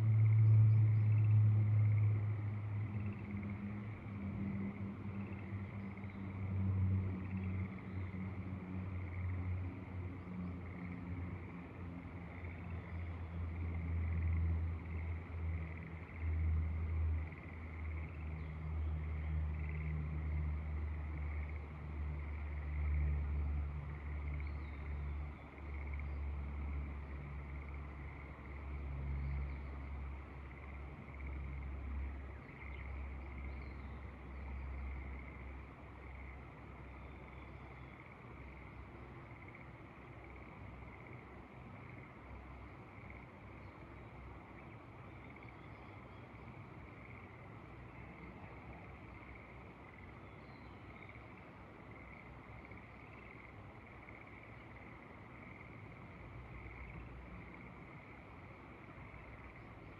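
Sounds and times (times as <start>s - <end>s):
frogs trilling: 0.0s - 59.9s
faint bird chirps: 50.0s - 51.3s.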